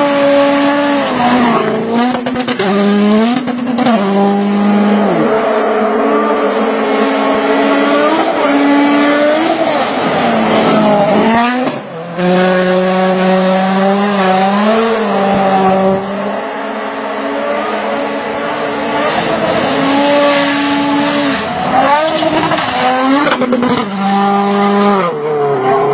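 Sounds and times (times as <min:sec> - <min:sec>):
rally car engine revving high: 0:00.0 - 0:25.9.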